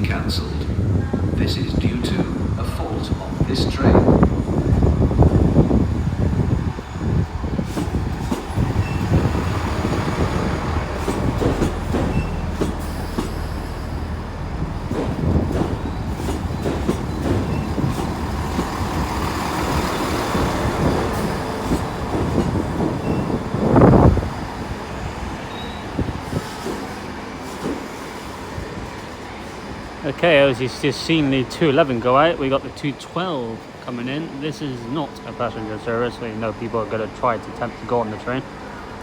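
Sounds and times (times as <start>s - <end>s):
diesel engine rumbling: 0.0s - 39.0s
train wheels clicking on rail joints: 5.2s - 30.0s.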